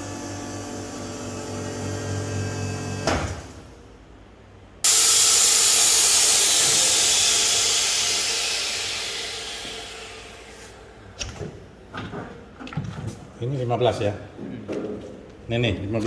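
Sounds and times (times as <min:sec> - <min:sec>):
air rushing hiss: 0:04.8 - 0:10.9
vacuum pump humming: 0:04.9 - 0:10.5.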